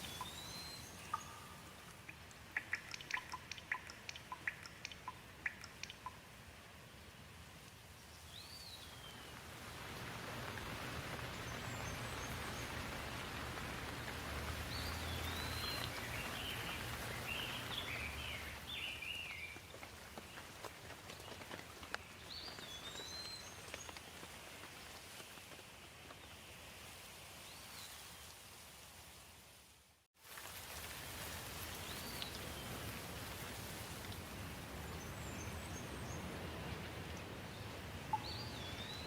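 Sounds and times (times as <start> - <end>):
bird chirping: 0.0 - 6.2
rain falling: 0.0 - 27.4, 30.2 - 39.0.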